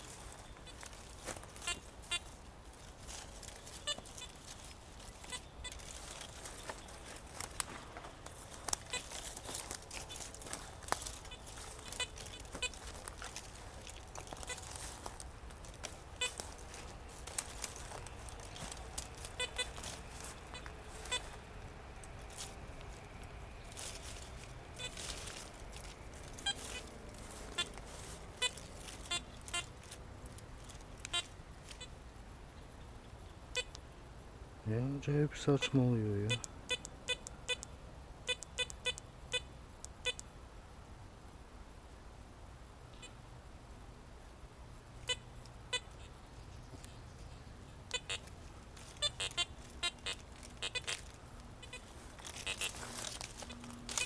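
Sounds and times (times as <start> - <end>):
leaves or soil scraping: 0.0 - 21.4, 23.7 - 30.9, 51.8 - 54.0.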